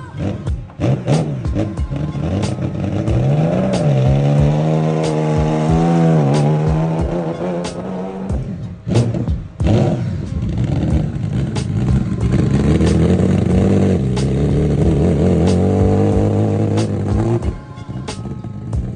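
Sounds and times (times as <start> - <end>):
sports car engine accelerating: 0.0 - 18.9.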